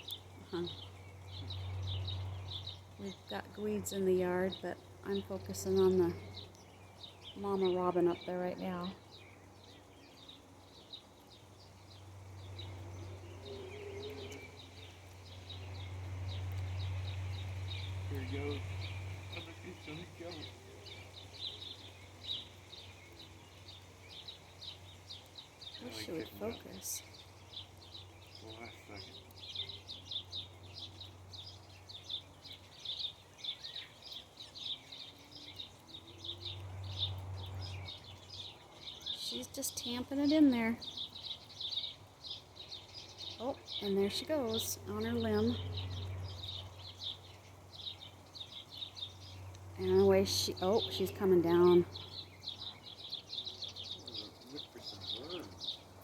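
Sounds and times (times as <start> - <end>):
small birds chirping: 0.0 - 56.0
steady low hum: 11.8 - 22.3.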